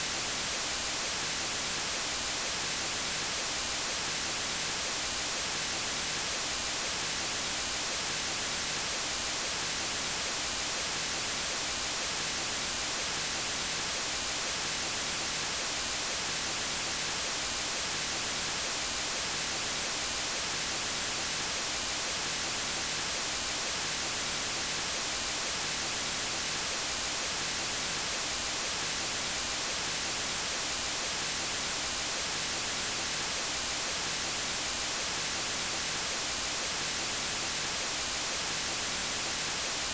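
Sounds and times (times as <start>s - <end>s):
synthetic white noise hiss: 0.0s - 39.9s.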